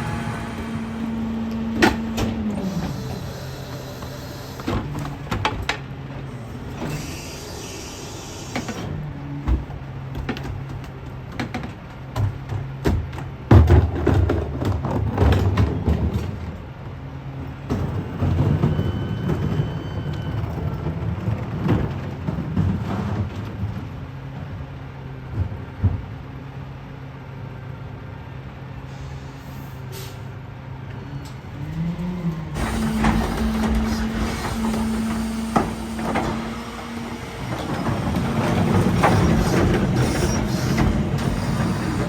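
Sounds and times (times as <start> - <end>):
garbage truck diesel engine: 0.0 - 42.0
refuse and bins clattering: 8.6 - 16.7, 31.7 - 42.0.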